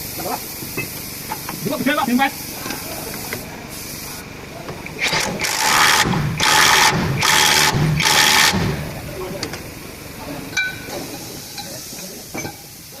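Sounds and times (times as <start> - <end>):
compressed-air tool bursts: 4.8 - 9.2.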